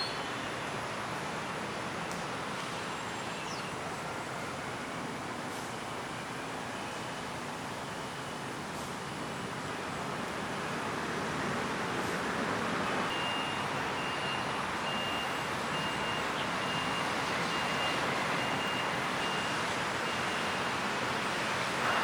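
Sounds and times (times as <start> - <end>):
city traffic hum: 0.0 - 22.0
reversing alarm beeping: 12.8 - 20.8, 21.8 - 22.0.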